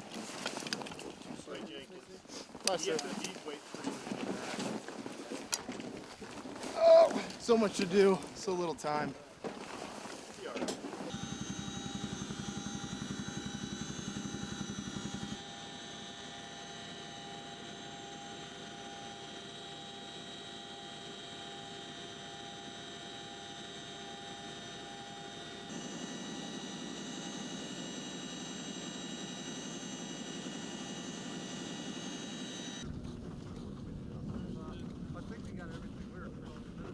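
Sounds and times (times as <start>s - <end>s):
helicopter turbine whine: 7.2s - 9.0s, 11.1s - 36.9s
fast helicopter rotor beat: 11.1s - 36.9s.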